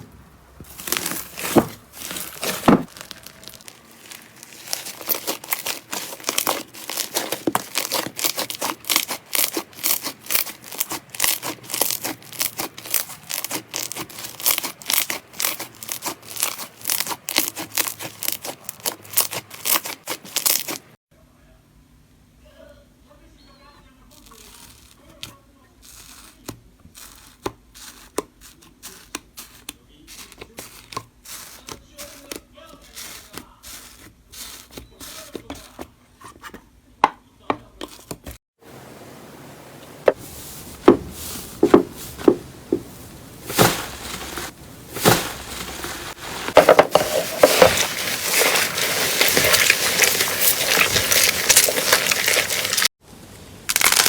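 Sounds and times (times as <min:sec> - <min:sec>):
slime dense crackling: 0:00.6 - 0:20.9, 0:40.1 - 0:53.0, 0:53.7 - 0:54.0.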